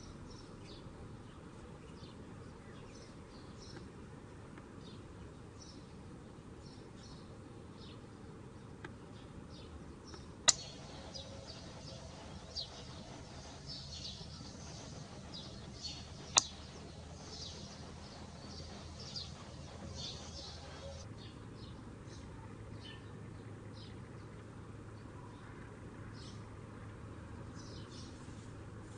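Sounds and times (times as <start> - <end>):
low steady background noise: 0.0 - 28.9
small birds chirping: 0.0 - 28.9
sharp clicks: 10.1 - 21.0.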